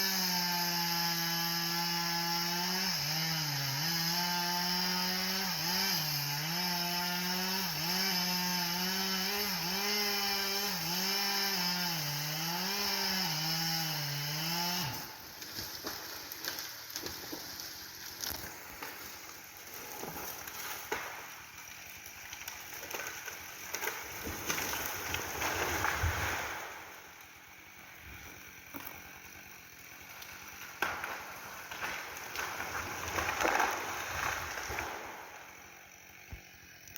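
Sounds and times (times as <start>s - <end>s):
chainsaw cutting into tree trunk: 0.0s - 36.9s
wood cracking: 15.2s - 27.3s, 28.1s - 36.9s.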